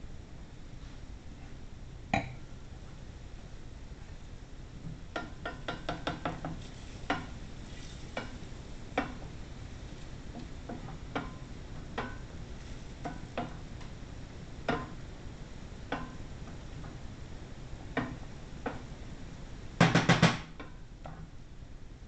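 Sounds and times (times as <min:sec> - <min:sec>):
loud knocks: 0:19.8 - 0:20.5.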